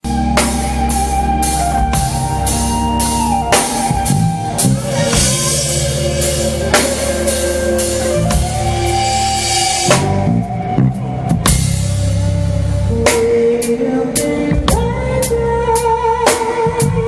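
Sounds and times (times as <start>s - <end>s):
long held instrumental notes: 0.0s - 15.3s
drum kit: 0.0s - 17.0s.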